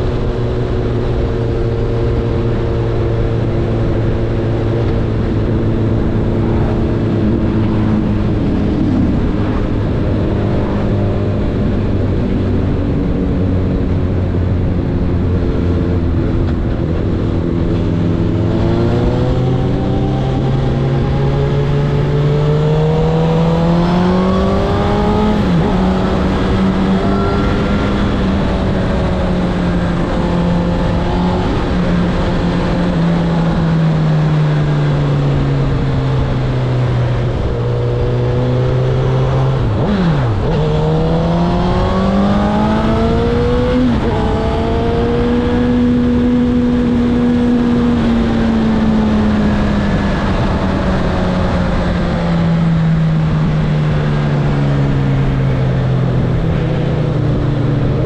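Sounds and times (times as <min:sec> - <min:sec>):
steady rush of noise: 0:00.0 - 0:58.0.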